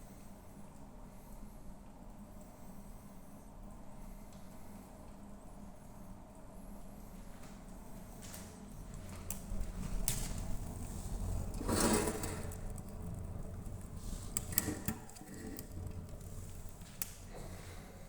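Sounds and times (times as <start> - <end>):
low steady rumble: 6.6 - 18.0
wood fire crackling and popping: 8.2 - 17.8.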